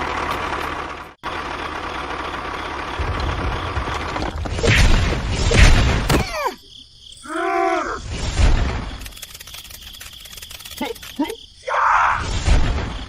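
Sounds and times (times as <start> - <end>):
engine rumbling: 0.0 - 6.3
sharp click: 9.0 - 11.4.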